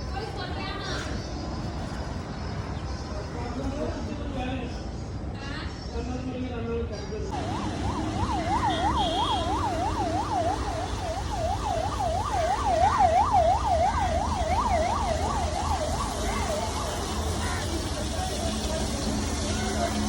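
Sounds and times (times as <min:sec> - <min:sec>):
road traffic rumble: 0:00.0 - 0:20.0
siren yelping: 0:07.4 - 0:17.8.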